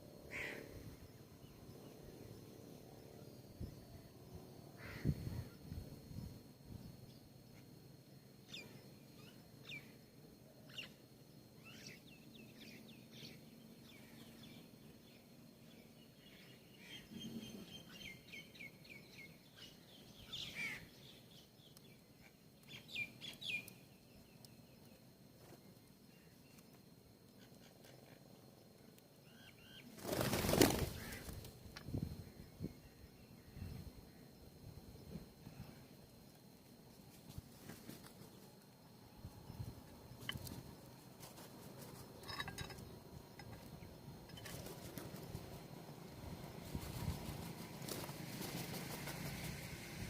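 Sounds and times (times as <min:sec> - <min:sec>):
small birds chirping: 0:10.6 - 0:35.2
wings flapping: 0:29.9 - 0:31.6, 0:37.2 - 0:38.4, 0:44.3 - 0:45.6, 0:46.6 - 0:49.7.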